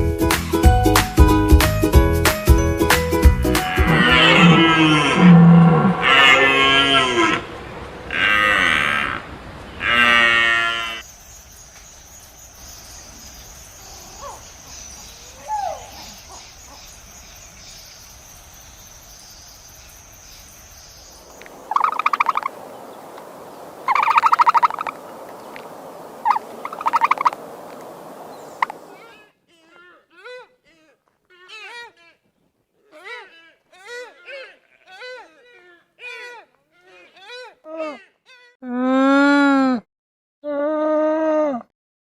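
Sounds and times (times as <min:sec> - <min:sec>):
cow mooing: 0:03.6 - 0:07.5, 0:08.1 - 0:11.0
pulsing high-pitched animal calls: 0:21.7 - 0:22.6, 0:23.9 - 0:25.0, 0:26.2 - 0:27.4.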